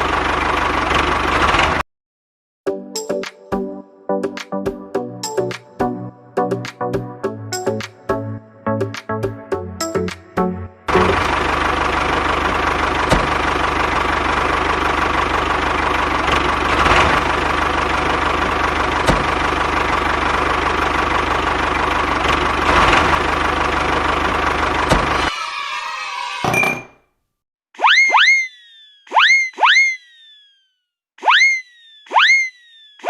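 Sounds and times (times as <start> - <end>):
engine idling: 0.0 - 1.8, 10.9 - 25.3.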